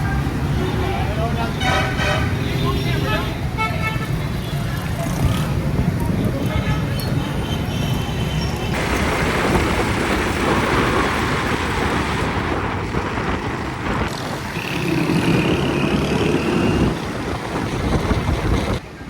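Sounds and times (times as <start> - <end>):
busy road traffic: 0.0 - 19.0.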